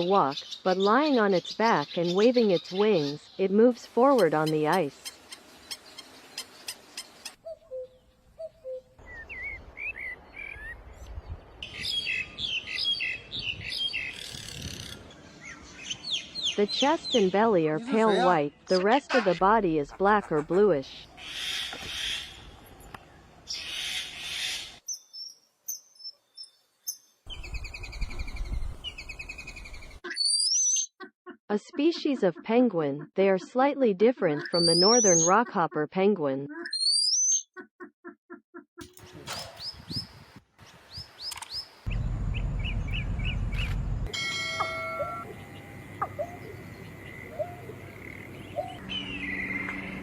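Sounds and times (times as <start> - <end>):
birds chirping: 0.0 - 37.9, 38.8 - 50.0
bird chirps and whistles: 30.0 - 30.9, 36.6 - 37.4
low rumble: 41.9 - 44.1.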